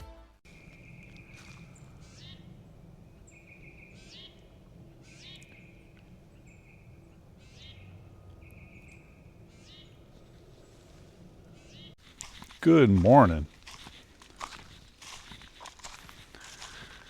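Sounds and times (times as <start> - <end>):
steady low background rumble: 0.5 - 12.6
songbird singing: 0.5 - 17.0.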